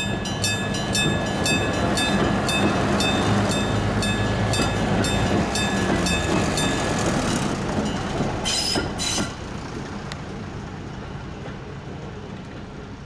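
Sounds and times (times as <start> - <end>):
level crossing electric bell: 0.0 - 7.2
train rumbling over crossing: 0.0 - 13.0.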